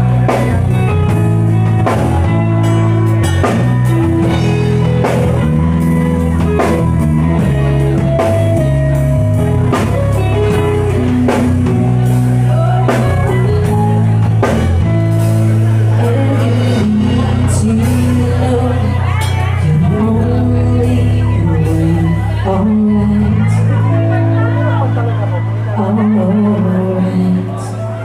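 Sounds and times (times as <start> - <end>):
drum kit: 0.0 - 22.2
guitar: 0.0 - 28.0
live rock band: 0.0 - 28.0
steady low notes: 0.0 - 28.0.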